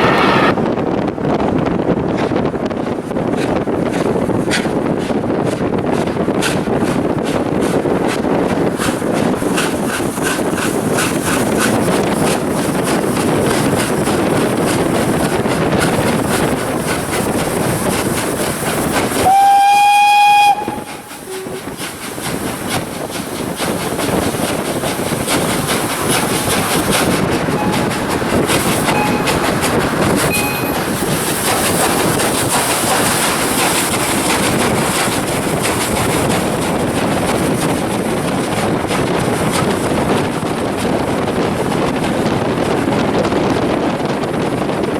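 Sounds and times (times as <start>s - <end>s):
steam locomotive whistle: 0.0s - 0.6s, 19.2s - 21.7s, 27.5s - 28.1s, 28.8s - 29.4s, 30.2s - 31.0s
train rumbling on rails: 0.0s - 44.9s.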